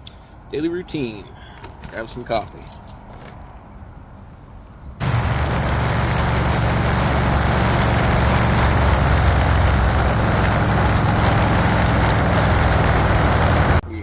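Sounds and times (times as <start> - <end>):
road and wind noise: 0.0 - 14.0
vehicle engine running: 5.0 - 13.8.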